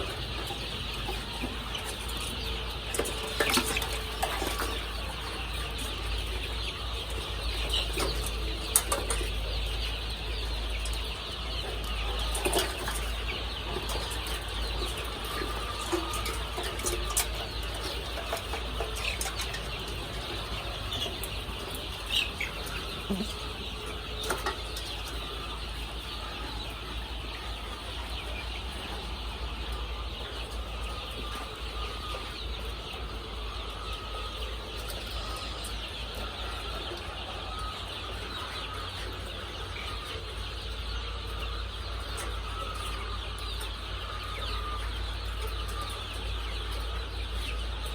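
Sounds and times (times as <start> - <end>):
chicks cheeping: 0.0 - 47.9.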